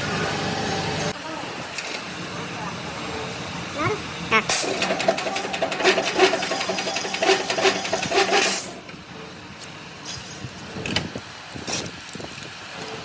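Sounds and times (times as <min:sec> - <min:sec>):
factory machinery clattering: 0:04.5 - 0:09.0.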